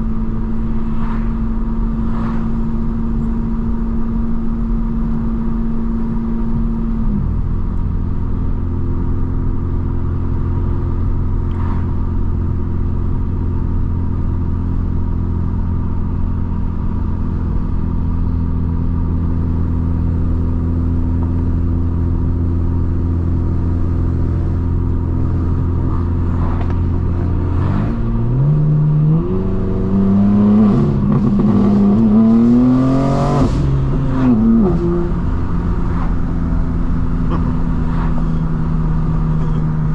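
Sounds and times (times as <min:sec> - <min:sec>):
car exhaust revving: 0:16.2 - 0:39.9.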